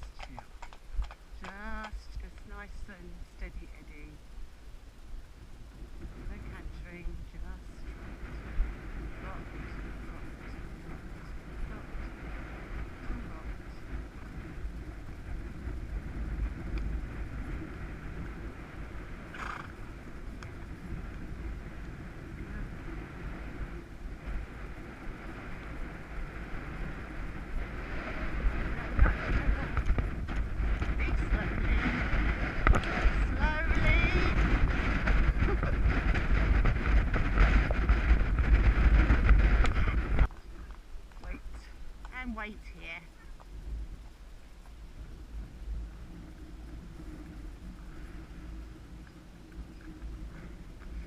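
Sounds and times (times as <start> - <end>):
wind rumble on microphone: 0.0 - 51.0
horse snorting: 19.3 - 19.8.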